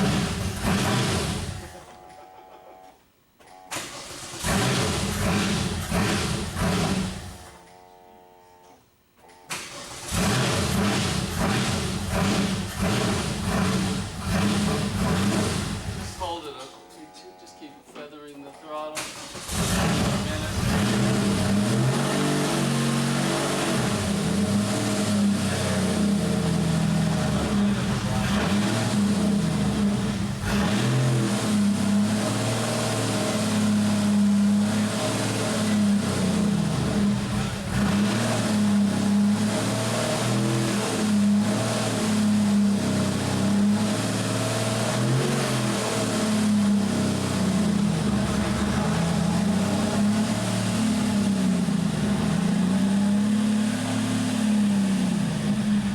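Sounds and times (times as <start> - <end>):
race car engine fast idle: 19.0 - 21.8.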